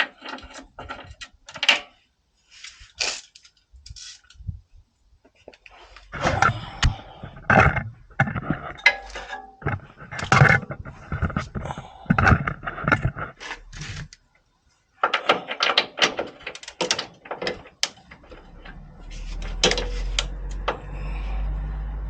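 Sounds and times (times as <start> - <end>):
steady low hum: 4.4 - 15.6.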